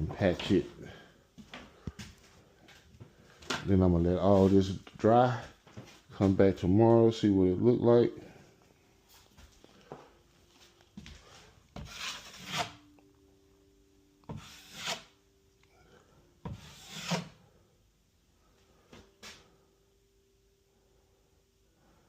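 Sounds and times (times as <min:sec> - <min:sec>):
faint steady hum: 0:00.0 - 0:22.0
drywall scraping: 0:11.8 - 0:12.8, 0:14.3 - 0:15.1, 0:16.5 - 0:17.4.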